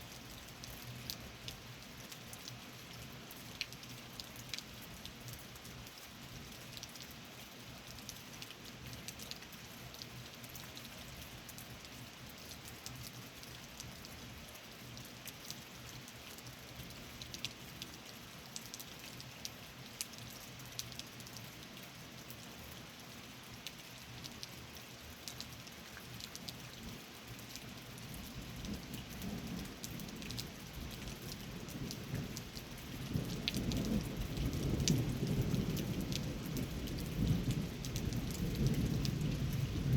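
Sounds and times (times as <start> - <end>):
steady rain: 0.0 - 39.9
low thunder rumble: 33.0 - 39.9.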